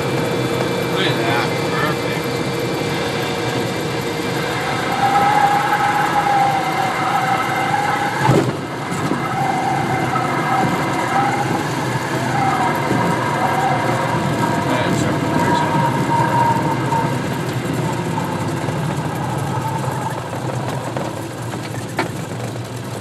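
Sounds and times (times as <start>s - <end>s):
aircraft engine idling and airflow: 0.0s - 23.0s
stall warning horn: 2.9s - 19.6s
wheels touching down thump: 8.2s - 13.2s, 15.4s - 23.0s.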